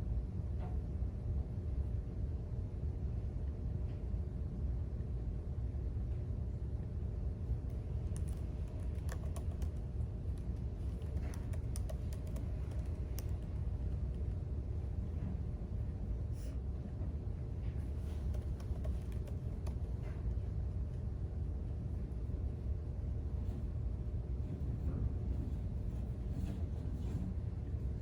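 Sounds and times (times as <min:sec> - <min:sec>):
low background rumble: 0:00.0 - 0:28.0.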